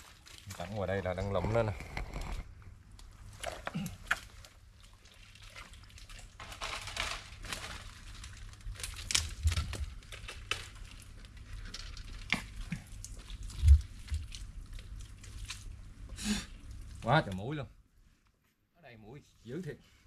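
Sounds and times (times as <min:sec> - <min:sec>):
hands sloshing in wet mud: 0:00.0 - 0:01.7, 0:03.4 - 0:06.6, 0:12.4 - 0:15.8.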